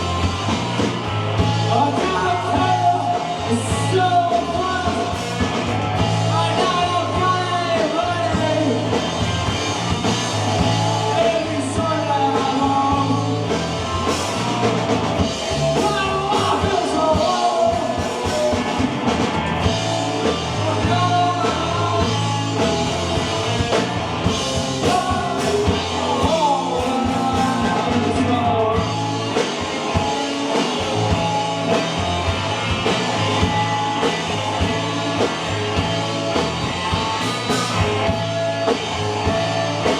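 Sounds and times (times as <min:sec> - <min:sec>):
live rock band: 0:00.0 - 0:39.9
person singing: 0:15.7 - 0:18.8, 0:24.6 - 0:29.4.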